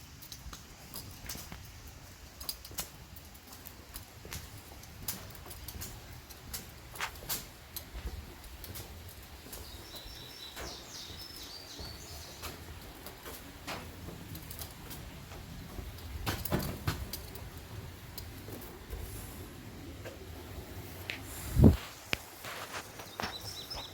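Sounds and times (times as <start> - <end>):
bird chirping: 9.4 - 12.7, 22.9 - 23.9.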